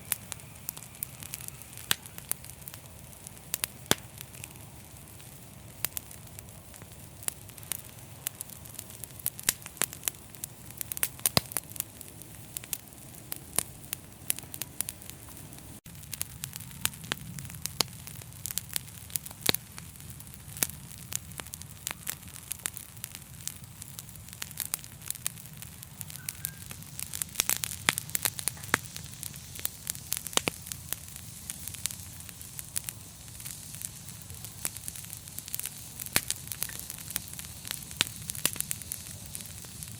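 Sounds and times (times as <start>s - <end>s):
fire crackling: 0.0s - 39.9s
sharp pops and snaps: 3.4s - 4.6s, 11.0s - 11.6s, 20.5s - 39.9s.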